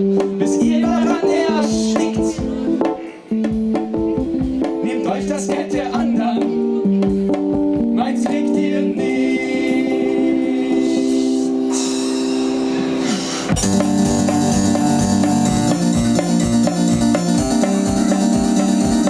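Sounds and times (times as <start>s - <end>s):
drum beat: 0.0s - 8.6s, 13.5s - 19.0s
live band playing: 0.0s - 19.0s
electric piano chord: 6.0s - 19.0s.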